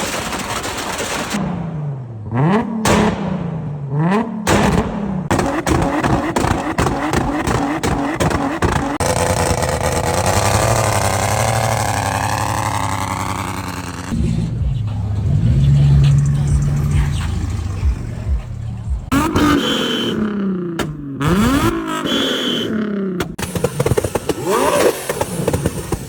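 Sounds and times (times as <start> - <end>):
exhaust pops and crackles: 0.0 - 1.6, 4.4 - 14.7, 20.6 - 22.1, 23.1 - 26.0
car engine revving: 0.2 - 26.0.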